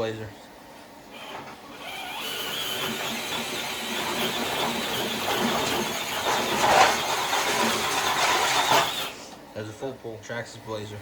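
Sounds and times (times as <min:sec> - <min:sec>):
electric motor whining under load: 0:01.1 - 0:09.4
sled scraping on concrete: 0:02.6 - 0:09.2.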